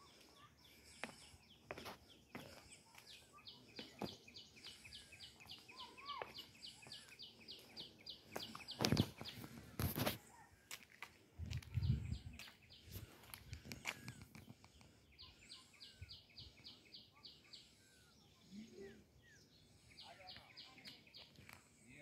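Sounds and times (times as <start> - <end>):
footsteps on stone path: 0.0 - 15.0, 20.3 - 21.8.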